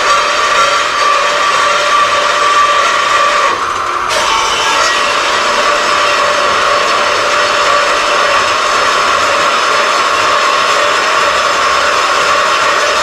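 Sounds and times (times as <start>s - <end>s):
power tool cutting steel: 0.0s - 13.0s.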